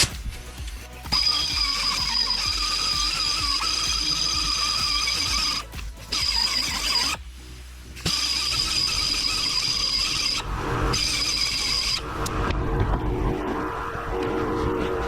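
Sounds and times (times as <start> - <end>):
angle grinder grinding metal: 0.0 - 7.2, 8.0 - 12.3.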